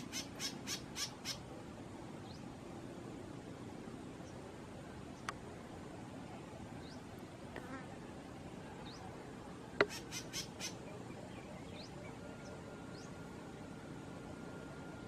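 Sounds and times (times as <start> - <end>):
bird chirps: 0.0 - 1.4, 9.8 - 13.2
outdoor background noise: 0.0 - 15.0.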